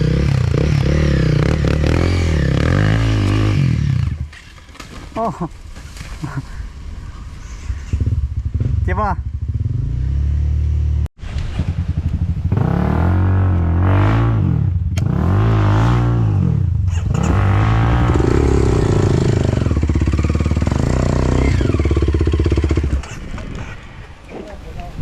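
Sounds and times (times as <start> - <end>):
dirt bike engine revving: 0.0 - 4.4, 7.8 - 23.3.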